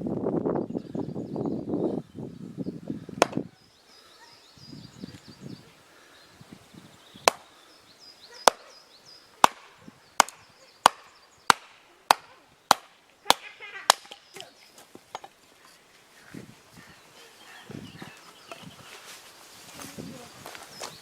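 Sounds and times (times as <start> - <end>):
bird chirps: 0.6 - 15.8
firewood being chopped: 3.2 - 3.5, 7.2 - 7.6, 8.4 - 8.7, 9.4 - 15.4.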